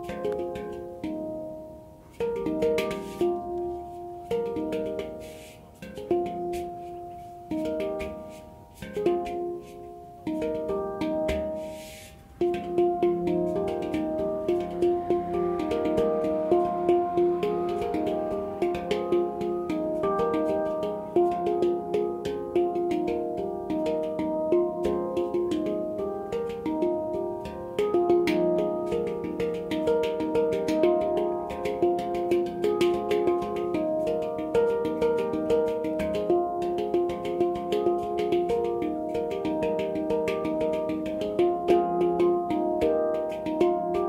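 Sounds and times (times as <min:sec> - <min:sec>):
handpan played solo: 0:00.0 - 0:44.0.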